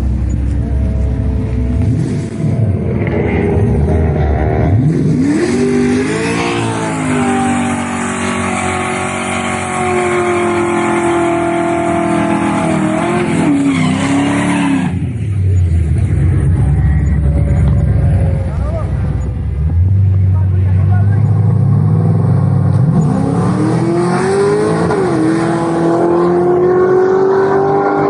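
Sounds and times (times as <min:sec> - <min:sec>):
low rumble: 0:00.0 - 0:05.2, 0:15.1 - 0:21.6
vehicle engine revving: 0:00.0 - 0:28.0.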